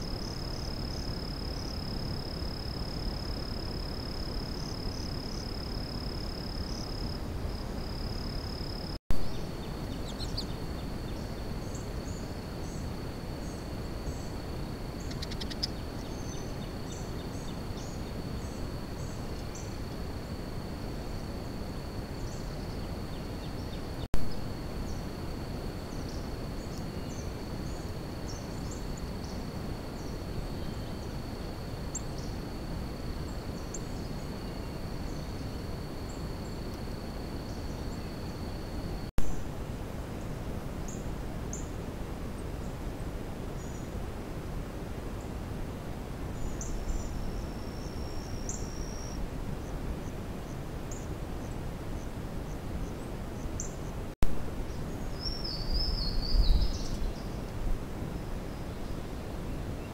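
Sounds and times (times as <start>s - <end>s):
faint bird chirps: 0.0s - 20.4s, 46.4s - 49.8s, 54.7s - 57.5s.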